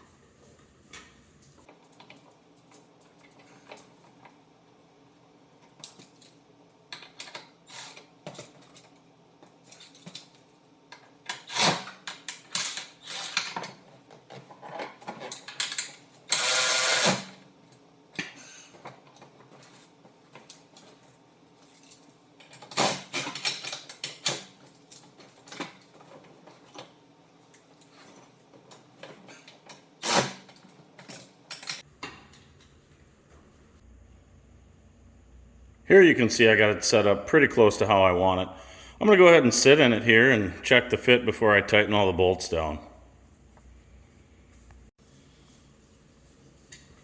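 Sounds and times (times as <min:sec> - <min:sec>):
hand tools clicking and clanking: 0:27.5 - 0:32.8.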